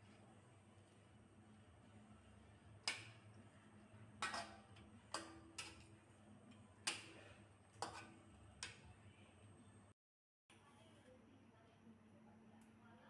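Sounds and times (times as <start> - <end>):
utensil knocking cookware: 4.2 - 5.9.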